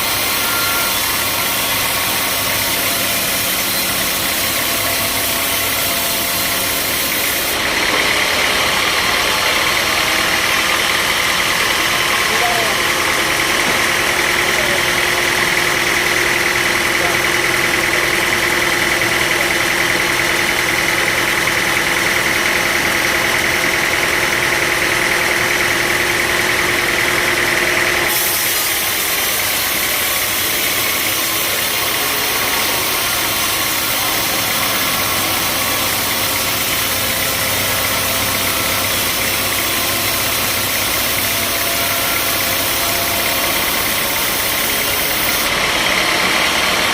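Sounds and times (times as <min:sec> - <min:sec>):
high-pitched whine: 0:00.0 - 0:07.6
sawmill machinery droning: 0:00.0 - 0:46.9.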